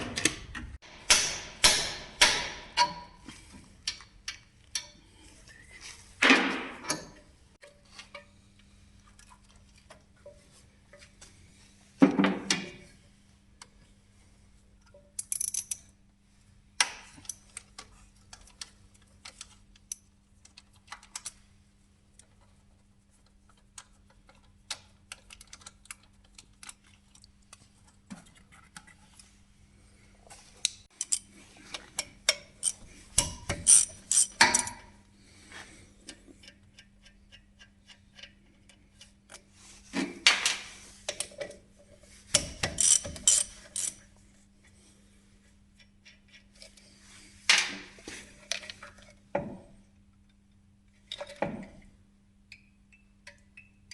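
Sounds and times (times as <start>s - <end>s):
metal tools clinking: 32.1s - 34.9s.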